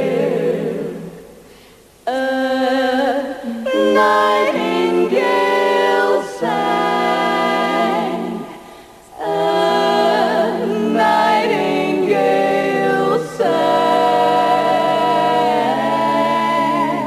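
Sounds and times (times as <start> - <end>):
wordless vocal harmony: 0.0 - 17.0.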